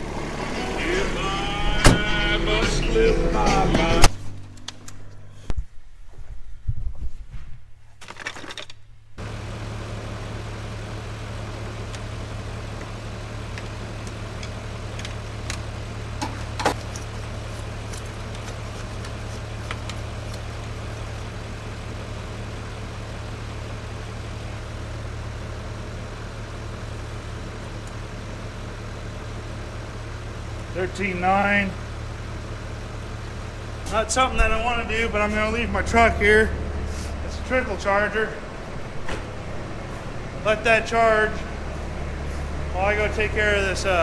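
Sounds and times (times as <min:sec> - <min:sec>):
truck engine starting and idling: 0:00.0 - 0:07.1, 0:07.9 - 0:44.0.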